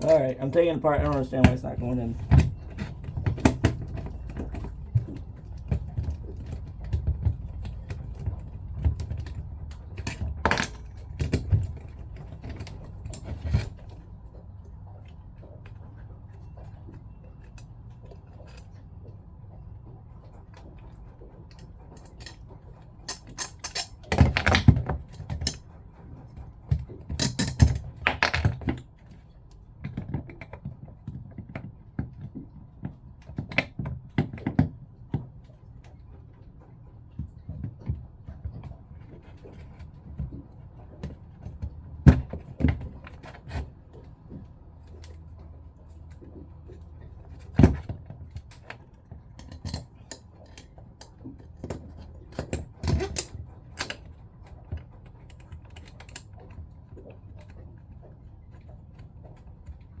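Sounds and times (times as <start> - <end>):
pump parts clicking and rattling: 0.0 - 14.2, 21.6 - 25.7, 26.6 - 29.2, 37.4 - 60.0.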